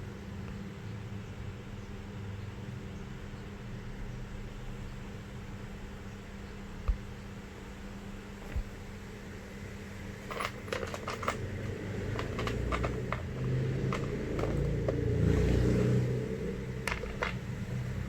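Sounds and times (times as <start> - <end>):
light clicks and knocks of tools: 10.2 - 15.5, 16.8 - 17.6.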